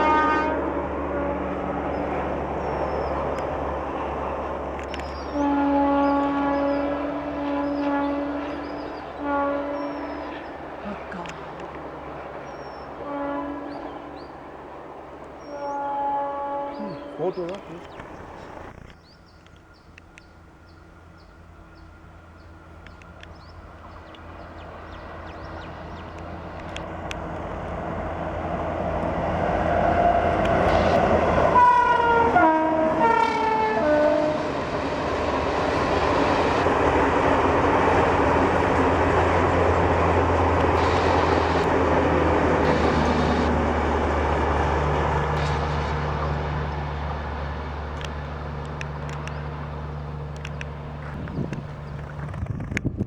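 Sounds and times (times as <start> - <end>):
train horn blasts: 0.0 - 1.9, 5.0 - 11.6, 12.8 - 14.4, 15.4 - 17.4, 28.4 - 46.4
train rushing and rumbling past: 0.0 - 53.0.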